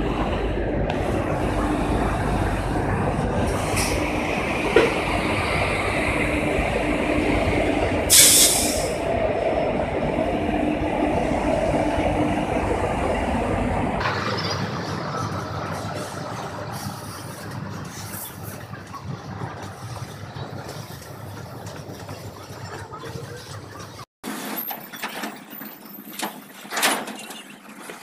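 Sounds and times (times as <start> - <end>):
train rumble: 0.0 - 28.0
loud hiss of air: 8.1 - 9.1.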